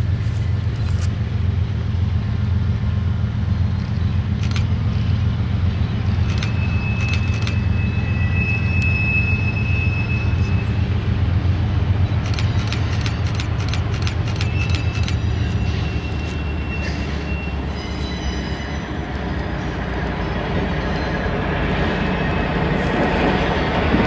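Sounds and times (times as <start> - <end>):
train rumbling by: 0.0 - 24.0
high wheel squeal: 6.1 - 11.2, 12.3 - 23.2
wheel clicks over rail joints: 12.2 - 15.2.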